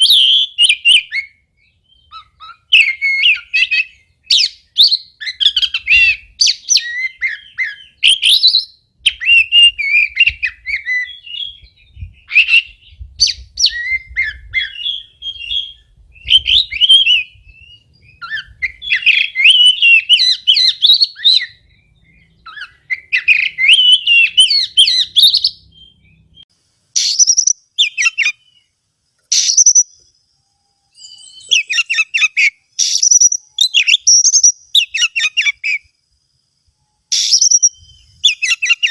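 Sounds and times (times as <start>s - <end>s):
bird singing whistled phrases: 0.0s - 26.4s, 27.0s - 28.7s, 29.3s - 30.0s, 30.6s - 35.9s, 36.8s - 38.9s.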